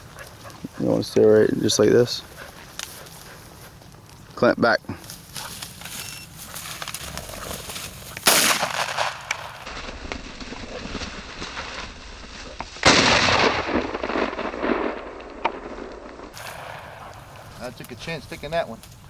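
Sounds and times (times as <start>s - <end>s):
shotgun shots with echo: 8.2s - 9.7s.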